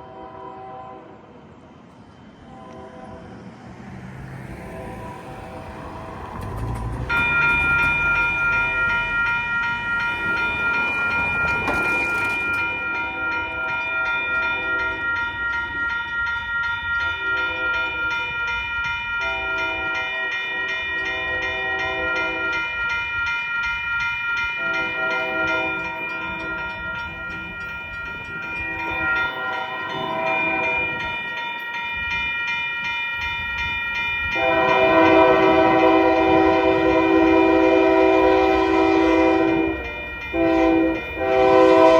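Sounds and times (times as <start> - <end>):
railroad crossing bell ringing: 0.0 - 1.1, 4.1 - 41.9
locomotive horn blasts: 0.0 - 1.2, 2.5 - 3.4, 17.2 - 18.0, 19.2 - 22.7, 24.6 - 26.5, 34.3 - 41.9.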